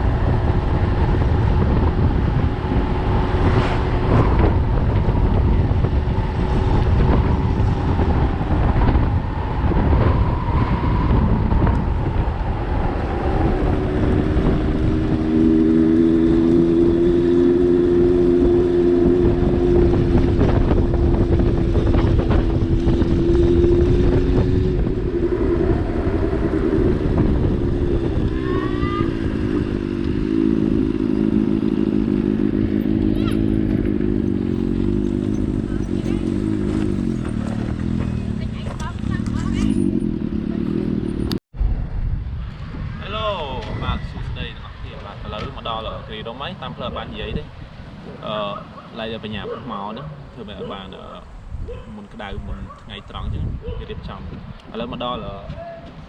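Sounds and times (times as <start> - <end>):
vehicle engine humming: 0.0 - 42.1, 44.7 - 52.8.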